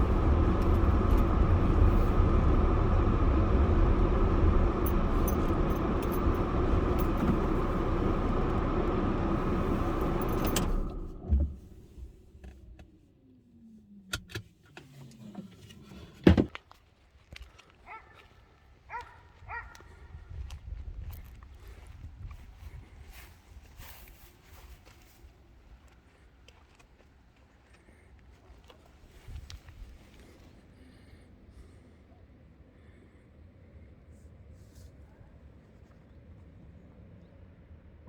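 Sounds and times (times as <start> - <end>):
car driving rumble: 0.0 - 12.9
outdoor ambience: 0.0 - 38.0.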